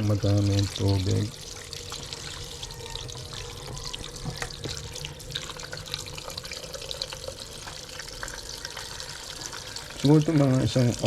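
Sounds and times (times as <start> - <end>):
water dripping: 0.0 - 11.0
tap water splashing into pot: 3.2 - 11.0.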